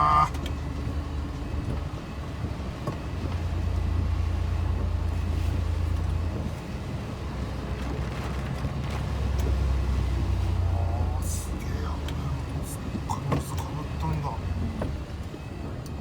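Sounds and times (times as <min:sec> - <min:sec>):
road noise: 0:00.0 - 0:16.0
truck diesel engine droning: 0:00.0 - 0:16.0.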